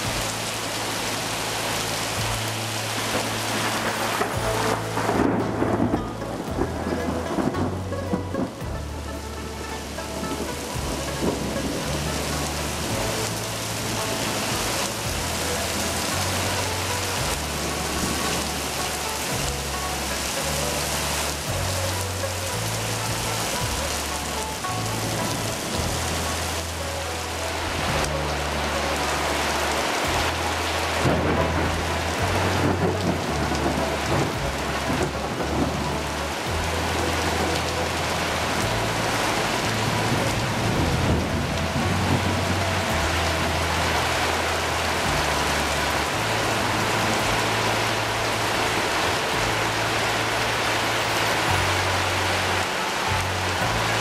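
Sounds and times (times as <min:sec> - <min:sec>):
heavy rain pouring: 0:00.0 - 0:54.0
low bass background music: 0:00.0 - 0:54.0
thunder rumbling: 0:02.2 - 0:26.7, 0:30.0 - 0:50.3.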